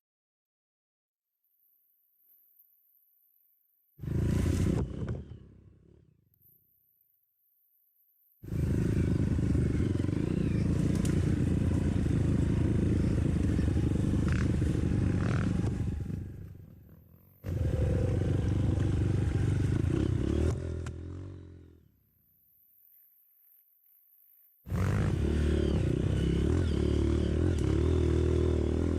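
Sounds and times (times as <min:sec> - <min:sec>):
motorcycle engine running: 0:04.0 - 0:06.0, 0:08.4 - 0:21.9, 0:24.7 - 0:28.9.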